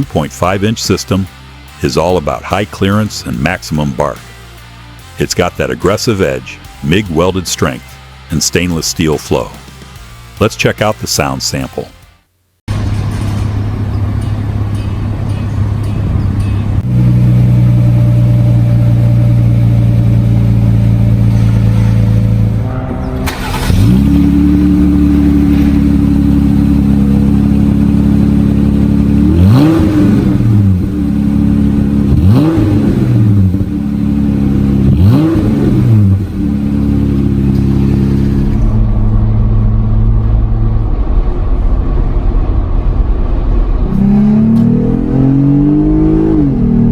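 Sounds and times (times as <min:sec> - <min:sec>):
car engine idling: 0:12.7 - 0:45.8
engine revving: 0:16.8 - 0:46.9.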